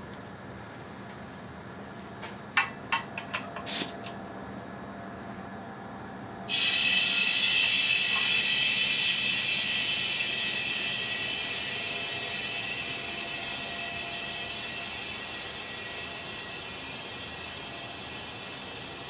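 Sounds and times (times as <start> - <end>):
hiss: 3.6 - 4.0, 6.5 - 19.0.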